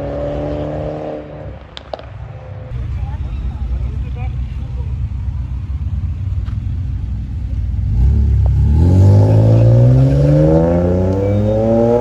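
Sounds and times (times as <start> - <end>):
car engine accelerating: 2.7 - 12.0.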